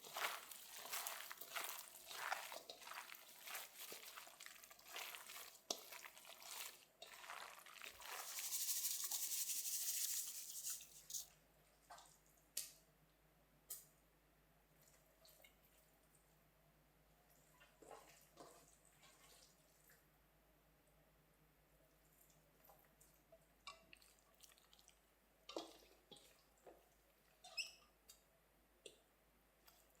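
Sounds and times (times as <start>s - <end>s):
water splashing in sink: 0.1s - 11.2s.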